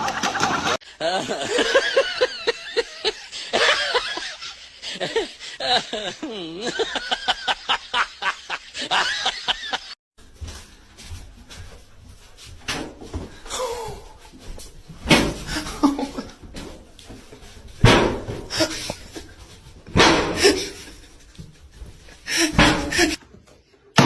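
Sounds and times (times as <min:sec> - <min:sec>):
person laughing: 0:00.0 - 0:10.0, 0:15.5 - 0:16.5, 0:18.5 - 0:19.4, 0:20.3 - 0:21.4, 0:22.2 - 0:23.2
sharp knocks or slaps: 0:17.8 - 0:18.7, 0:19.9 - 0:20.8.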